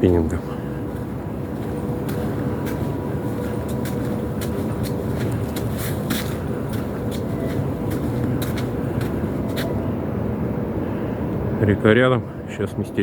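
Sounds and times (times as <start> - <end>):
footsteps: 0.0 - 9.9
steady low rumble: 0.0 - 13.0.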